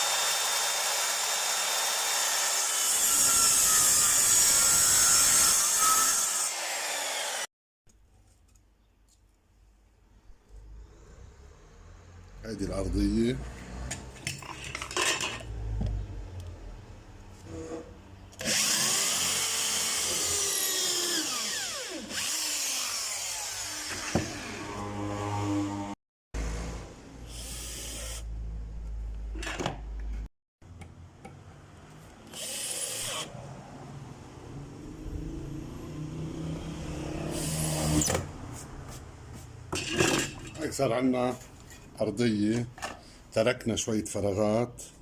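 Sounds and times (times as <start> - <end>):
electric drill driving screws: 0.0 - 7.5, 18.4 - 24.7, 27.3 - 28.3, 32.3 - 33.3.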